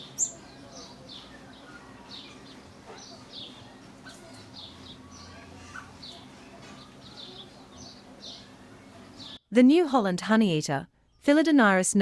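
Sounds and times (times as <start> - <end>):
birds chirping high: 0.0 - 9.4.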